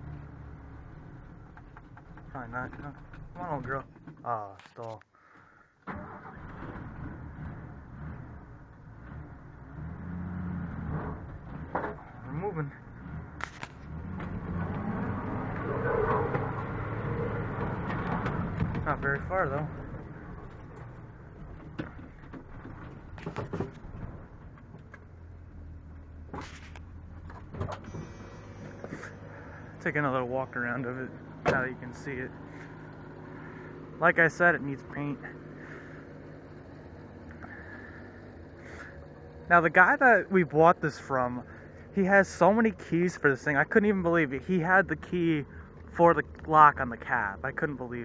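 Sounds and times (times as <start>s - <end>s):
inline-six engine running: 23.9s - 47.9s.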